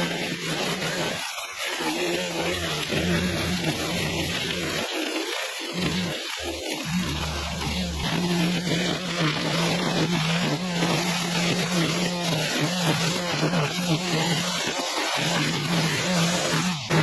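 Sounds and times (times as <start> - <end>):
vehicle engine drone: 2.3 - 4.8, 5.8 - 9.5.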